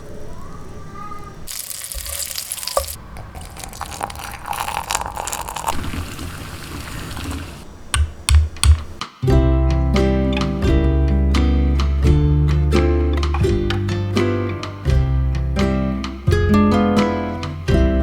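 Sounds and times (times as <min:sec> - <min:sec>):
kitchen items clattering: 0:01.5 - 0:07.7
tap water rushing: 0:01.5 - 0:07.7.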